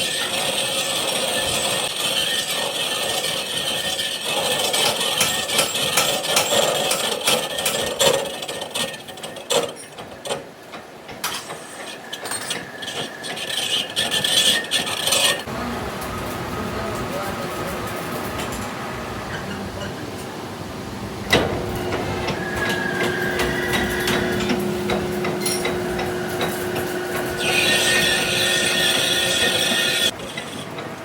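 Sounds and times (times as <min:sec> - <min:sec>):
tool rasping on metal: 0:00.0 - 0:09.9, 0:11.5 - 0:15.5, 0:22.3 - 0:30.7.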